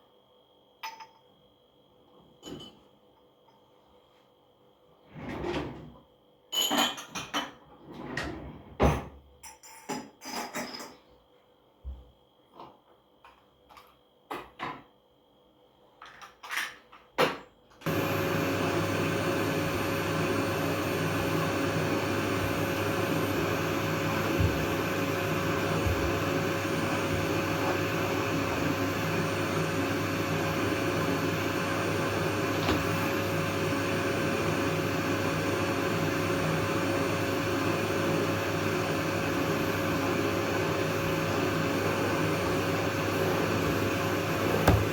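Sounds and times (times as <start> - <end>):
vacuum cleaner humming: 17.9 - 44.9.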